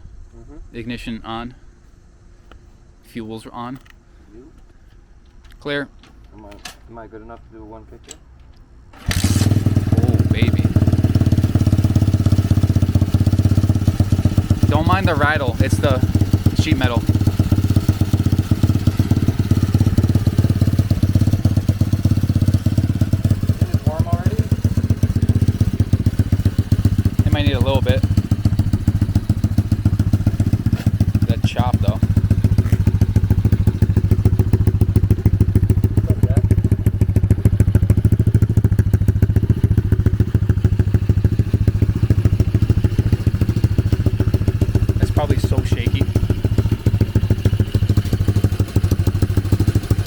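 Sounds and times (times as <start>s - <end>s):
dirt-bike engine idling: 9.0s - 50.0s.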